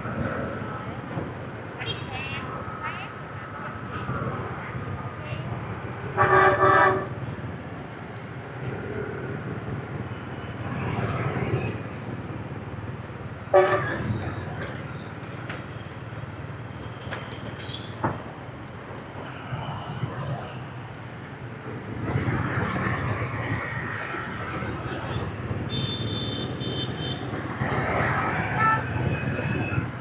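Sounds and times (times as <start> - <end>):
motorbike traffic rumble: 0.0 - 30.0
vehicle horn honking: 13.6 - 14.0.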